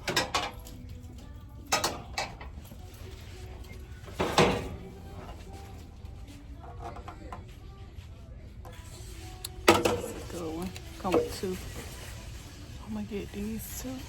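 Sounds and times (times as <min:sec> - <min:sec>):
pans clattering: 0:00.0 - 0:00.6, 0:01.7 - 0:02.6, 0:04.1 - 0:05.4, 0:09.6 - 0:12.0.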